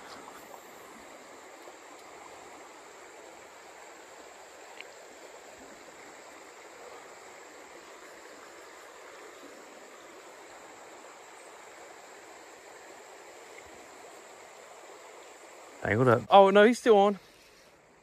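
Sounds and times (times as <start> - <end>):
river water flowing: 0.0 - 18.0
faint tick: 4.7 - 5.0.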